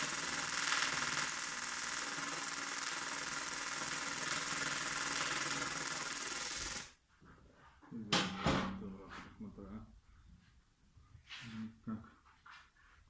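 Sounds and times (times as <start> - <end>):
welding arc hissing: 0.0 - 6.9.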